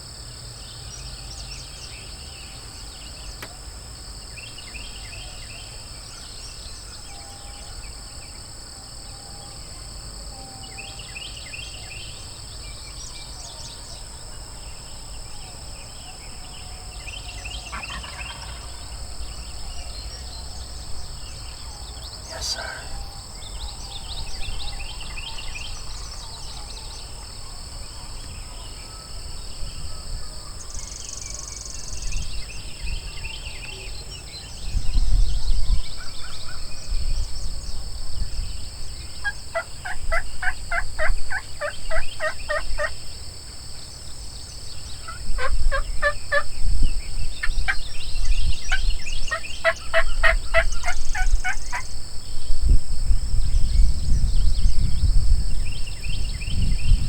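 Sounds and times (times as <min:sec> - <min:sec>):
wild turkey gobbling: 0:17.7 - 0:18.8, 0:22.3 - 0:22.9, 0:39.2 - 0:42.9, 0:45.0 - 0:46.4, 0:49.3 - 0:51.8
low rumble on microphone: 0:51.3 - 0:57.0.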